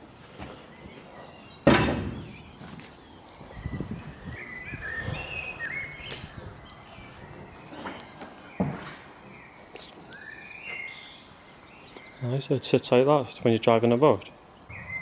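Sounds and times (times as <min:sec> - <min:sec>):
small birds chirping: 0:00.1 - 0:15.0
loud knock: 0:01.7 - 0:02.3.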